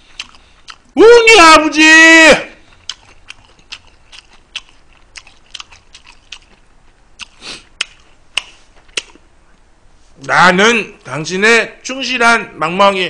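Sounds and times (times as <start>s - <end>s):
wet chewing clicks and smacks: 0.0s - 1.0s, 2.6s - 9.2s.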